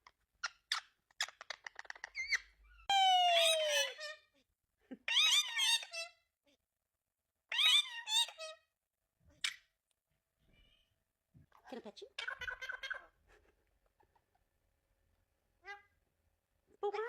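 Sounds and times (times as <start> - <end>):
parrot clicking and calling: 0.4 - 2.5.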